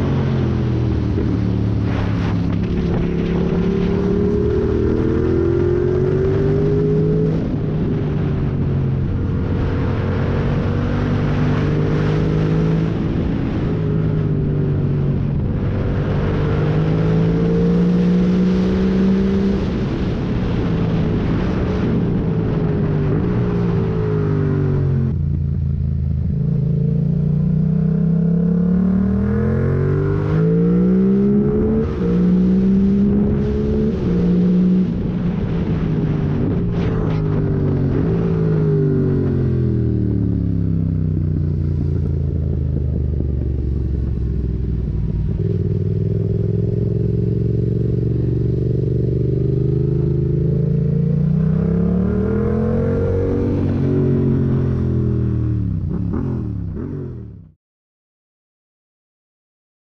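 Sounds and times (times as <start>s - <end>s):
motorcycle engine revving hard: 26.4s - 57.5s.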